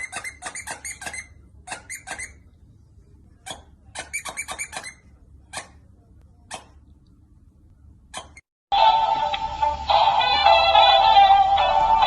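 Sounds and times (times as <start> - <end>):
squeaky toy squeaking: 0.0 - 2.5, 3.4 - 5.8, 6.5 - 6.8, 8.1 - 8.5.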